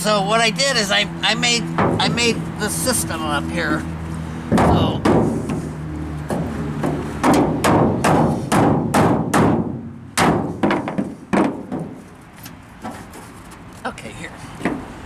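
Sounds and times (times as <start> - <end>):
hammer knocking wooden block: 4.5 - 5.3.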